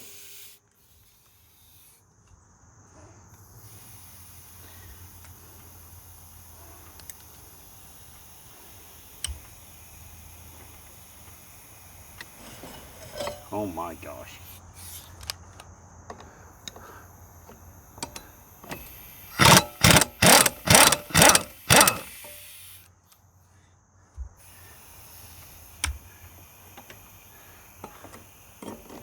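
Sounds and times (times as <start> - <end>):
impact wrench bursts: 18.0 - 22.9.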